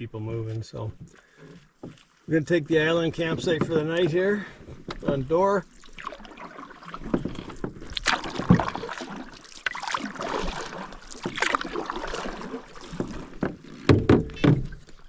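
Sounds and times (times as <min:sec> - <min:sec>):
water swishing along hull: 0:00.0 - 0:15.0
canoe paddles splashing in water: 0:00.9 - 0:15.0.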